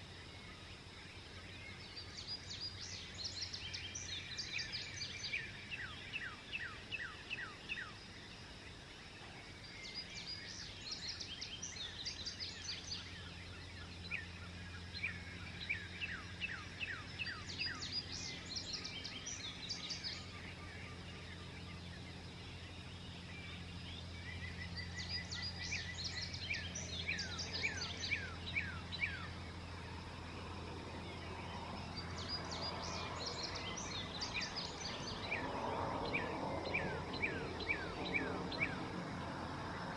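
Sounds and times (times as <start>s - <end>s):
songbirds singing: 0.0s - 39.9s
steady low hum: 11.3s - 39.9s.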